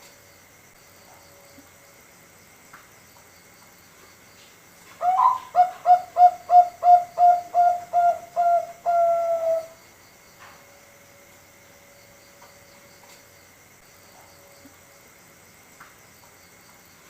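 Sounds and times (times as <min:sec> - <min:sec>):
dove cooing: 0:05.0 - 0:09.8.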